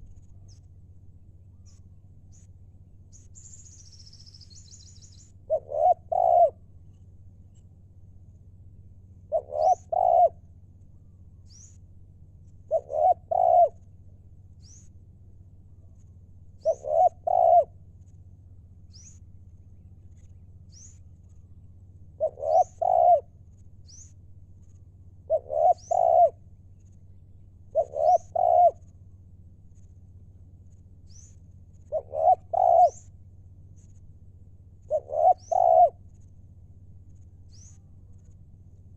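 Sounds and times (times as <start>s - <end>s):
faint high bird chirps: 0.0s - 0.8s, 1.4s - 7.8s, 9.2s - 11.9s, 12.6s - 13.9s, 14.5s - 15.0s, 15.6s - 18.2s, 18.8s - 30.0s, 30.7s - 34.1s, 34.8s - 36.4s, 37.0s - 38.5s
dove cooing: 5.5s - 6.6s, 9.2s - 10.4s, 12.7s - 13.8s, 16.6s - 17.8s, 22.2s - 23.3s, 25.3s - 26.4s, 27.7s - 28.9s, 31.9s - 33.1s, 34.8s - 36.0s.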